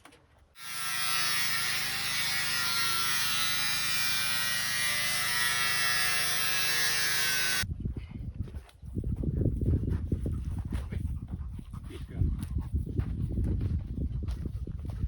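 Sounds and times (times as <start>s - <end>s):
small electric motor buzzing: 0.6s - 7.6s.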